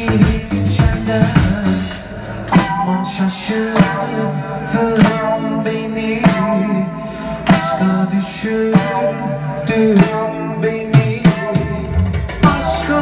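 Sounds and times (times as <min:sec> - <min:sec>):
guitar chords: 0:00.0 - 0:13.0
live band playing folk-rock: 0:00.0 - 0:13.0
drum hits: 0:11.0 - 0:13.0.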